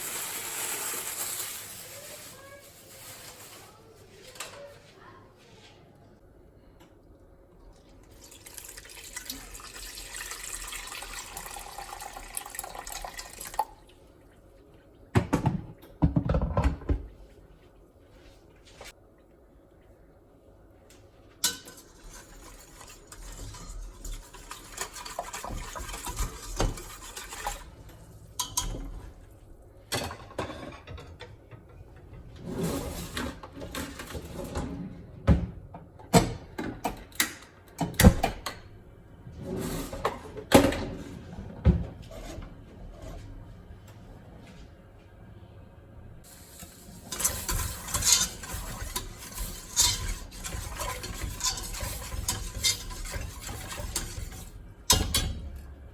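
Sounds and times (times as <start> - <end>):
frying sizzle: 0.0 - 2.3, 46.2 - 54.3
utensils and dishes clattering: 0.0 - 4.6, 21.4 - 27.7, 28.3 - 29.1, 29.9 - 31.6, 32.4 - 34.8, 46.3 - 55.6.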